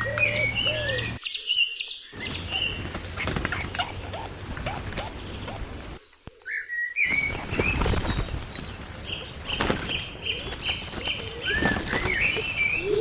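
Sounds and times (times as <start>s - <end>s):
wings flapping: 2.7s - 5.7s, 9.4s - 13.0s
woodpecker calls: 11.0s - 13.0s
high bird chirps: 11.1s - 13.0s.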